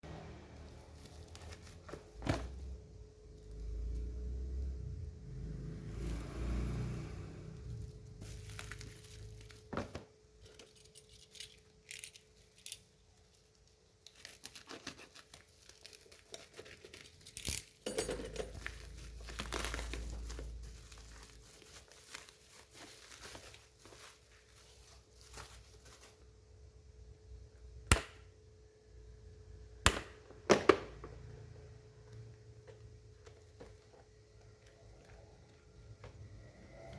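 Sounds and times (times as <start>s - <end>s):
packaging tearing and crinkling: 8.2s - 9.7s, 13.4s - 17.8s, 18.6s - 26.2s.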